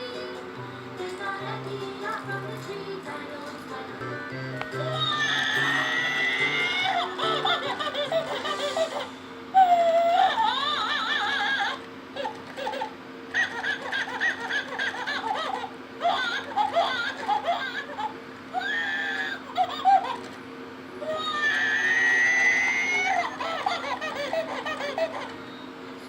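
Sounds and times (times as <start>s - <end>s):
high-pitched giggling: 4.8s - 18.2s, 23.0s - 25.4s.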